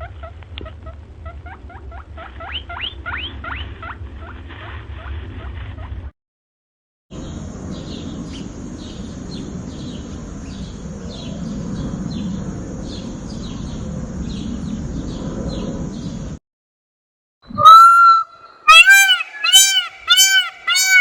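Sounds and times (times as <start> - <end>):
bird chirping: 7.2 - 16.2, 17.5 - 21.0.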